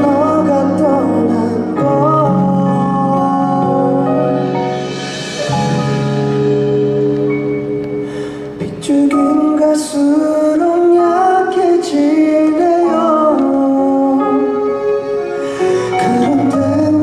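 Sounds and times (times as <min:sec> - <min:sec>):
man singing slow melody: 0:00.0 - 0:05.0, 0:08.6 - 0:17.0
instrumental accompaniment: 0:00.0 - 0:17.0.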